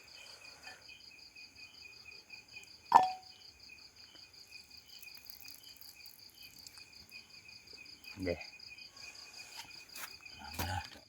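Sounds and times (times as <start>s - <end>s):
insects chirping: 0.0s - 11.0s
sharp knock with brief ring: 2.9s - 3.2s.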